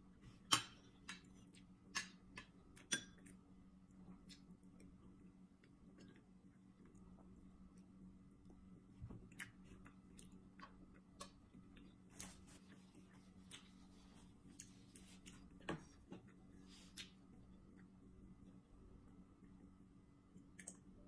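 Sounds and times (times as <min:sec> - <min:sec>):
faint steady hum: 0:00.0 - 0:21.0
person chewing: 0:04.1 - 0:07.2, 0:09.2 - 0:17.9.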